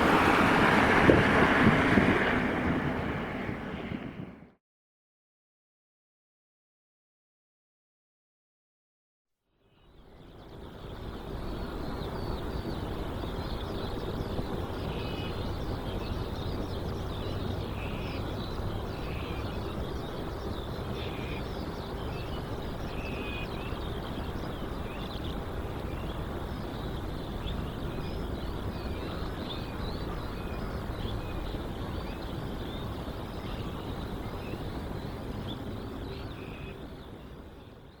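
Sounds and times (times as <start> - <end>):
distant jet engines rumbling: 0.0 - 4.6, 10.5 - 38.0
small birds chirping: 9.7 - 38.0.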